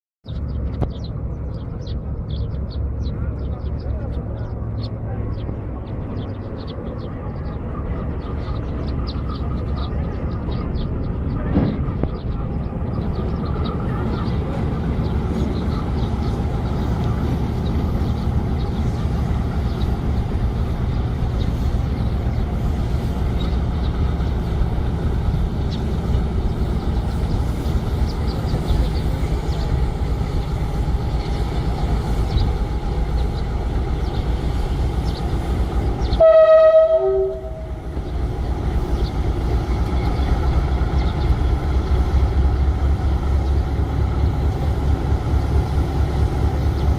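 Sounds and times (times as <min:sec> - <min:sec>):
diesel locomotive rumbling: 0:00.3 - 0:46.9
train horn blast: 0:36.1 - 0:37.9.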